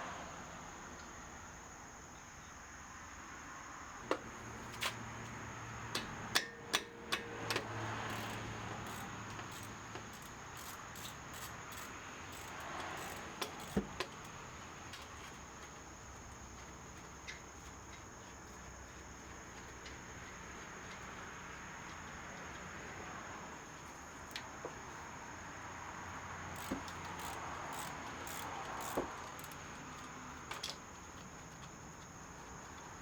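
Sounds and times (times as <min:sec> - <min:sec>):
metallic clicks of hand tools: 0:05.9 - 0:15.2, 0:26.6 - 0:30.8.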